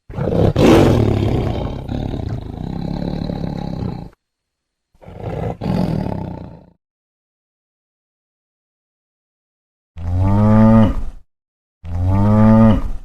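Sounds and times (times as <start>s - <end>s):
big cat roaring: 0.1s - 4.2s, 5.0s - 6.8s, 11.9s - 13.0s.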